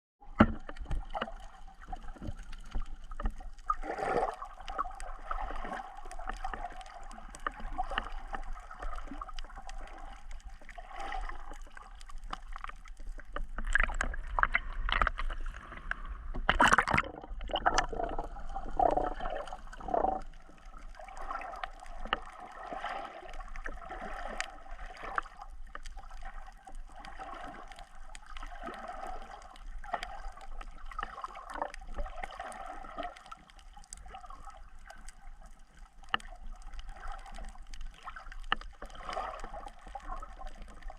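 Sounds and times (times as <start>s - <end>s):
water sloshing and gurgling: 0.2s - 40.9s
water splash: 0.3s - 25.4s.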